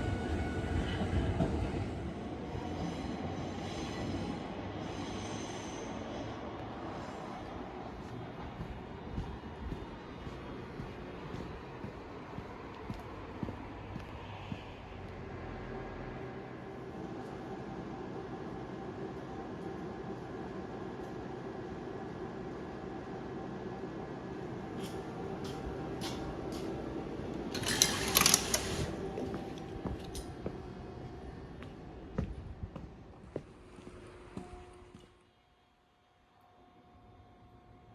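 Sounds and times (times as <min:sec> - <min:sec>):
train rumbling: 0:00.0 - 0:35.1
clicks and rattles: 0:27.4 - 0:30.3.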